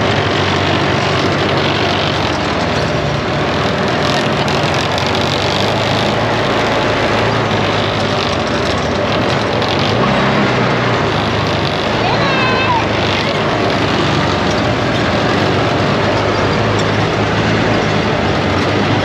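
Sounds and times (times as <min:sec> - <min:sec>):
atv engine running: 0:00.0 - 0:19.0
rushing noise: 0:00.0 - 0:19.0.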